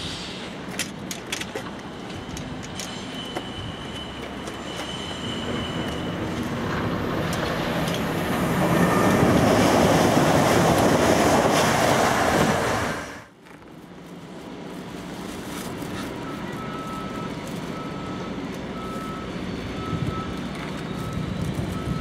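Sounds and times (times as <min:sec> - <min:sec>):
train wheels rumbling on track: 0:00.0 - 0:22.0
wheel squeal: 0:01.8 - 0:07.0.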